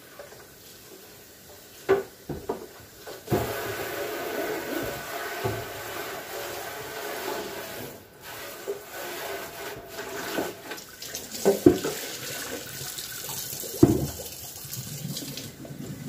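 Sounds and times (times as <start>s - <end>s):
tap water running into sink: 0.0s - 8.0s, 8.6s - 16.0s
plastic bins knocking sink: 1.8s - 3.8s, 10.2s - 12.8s, 13.7s - 14.4s.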